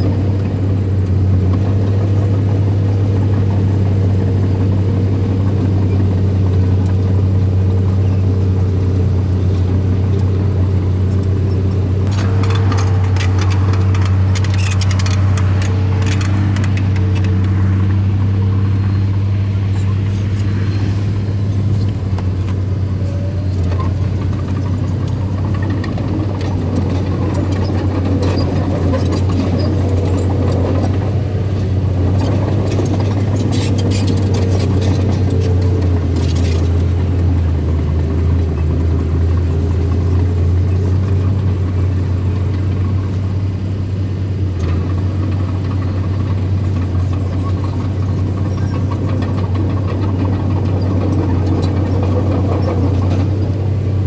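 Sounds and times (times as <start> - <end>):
bulldozer engine humming: 0.0 - 54.0
metallic clanks and rattles: 11.2 - 17.6, 19.7 - 41.4.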